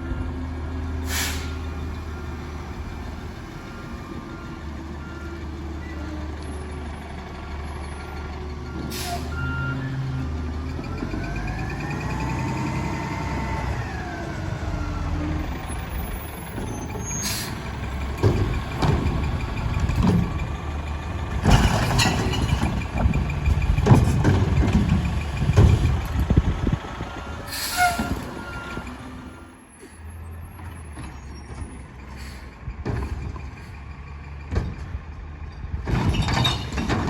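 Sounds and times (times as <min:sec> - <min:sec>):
diesel engine running: 0:00.0 - 0:37.0
metal clanks and bangs: 0:21.3 - 0:26.4, 0:30.6 - 0:37.0.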